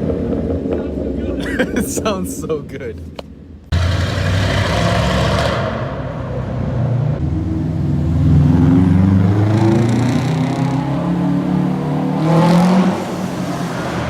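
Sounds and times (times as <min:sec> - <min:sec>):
car engine revving: 0:03.7 - 0:14.0.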